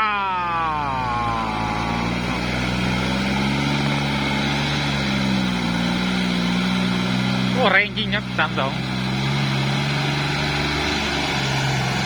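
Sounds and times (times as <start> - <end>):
man exclaiming: 0.0 - 2.7, 7.6 - 8.8
tractor diesel engine running: 0.0 - 12.0.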